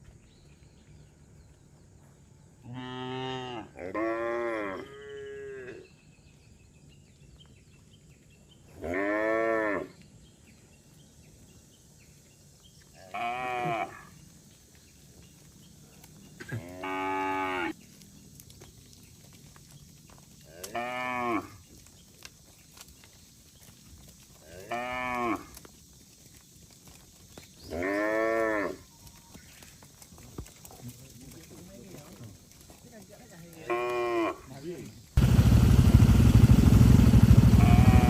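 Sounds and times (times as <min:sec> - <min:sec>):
cattle mooing: 0:02.7 - 0:05.8, 0:16.4 - 0:17.7, 0:37.5 - 0:38.0.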